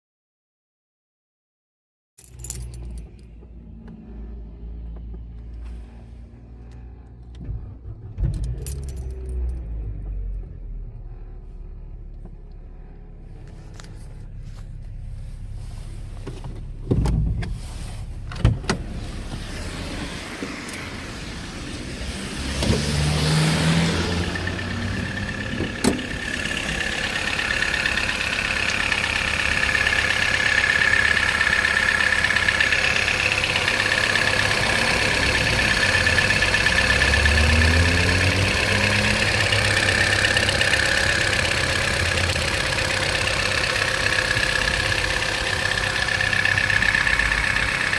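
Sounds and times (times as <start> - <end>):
car engine running: 2.2 - 47.9.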